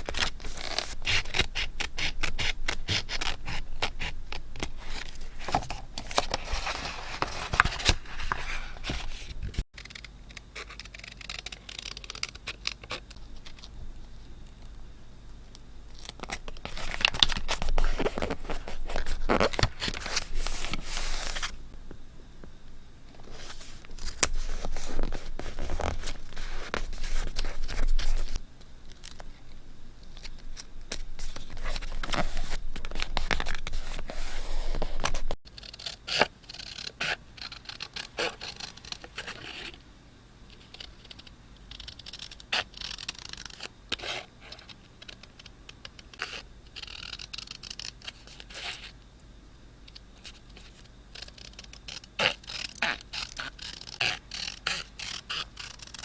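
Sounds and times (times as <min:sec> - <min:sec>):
paper scraping and rustling: 0:00.0 - 0:04.0, 0:04.6 - 0:09.6, 0:16.2 - 0:21.6, 0:23.2 - 0:28.4, 0:30.9 - 0:35.4.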